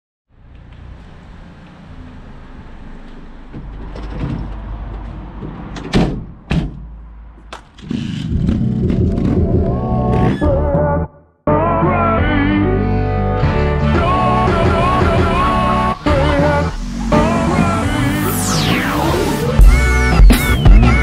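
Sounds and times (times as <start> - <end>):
van rear door clunks: 5.3 - 7.0.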